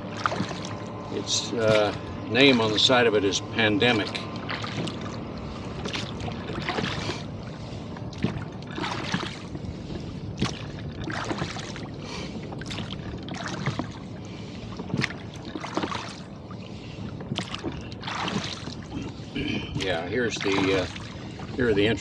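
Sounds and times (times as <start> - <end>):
water splashing around boat: 0.0 - 22.0.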